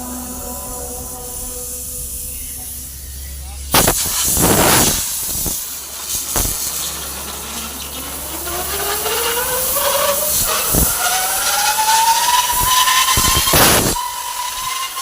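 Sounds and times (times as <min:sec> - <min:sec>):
thin rising whistle: 0:00.0 - 0:03.6, 0:07.7 - 0:15.0
compressed air hissing: 0:00.0 - 0:15.0
sharp air blasts: 0:03.7 - 0:15.0.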